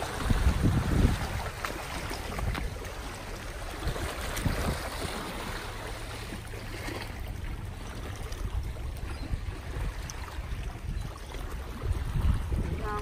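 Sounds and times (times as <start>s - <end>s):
seawater lapping at shore: 0.0s - 13.0s.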